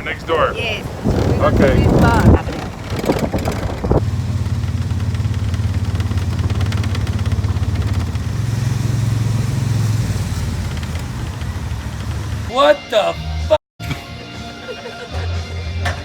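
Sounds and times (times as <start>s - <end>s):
golf cart engine humming: 0.0s - 12.5s.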